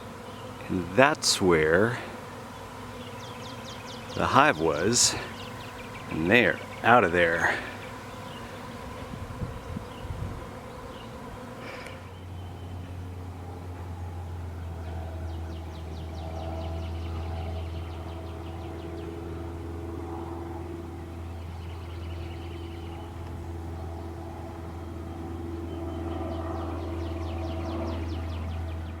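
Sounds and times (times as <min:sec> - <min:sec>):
bee swarm buzzing: 0:00.0 - 0:29.0
steady low hum: 0:00.0 - 0:29.0.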